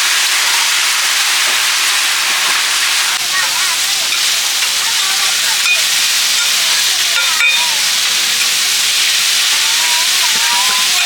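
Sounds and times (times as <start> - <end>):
batter sizzling in hot oil: 0.0 - 11.0
utensil clicking against pan: 4.1 - 4.8, 5.6 - 11.0.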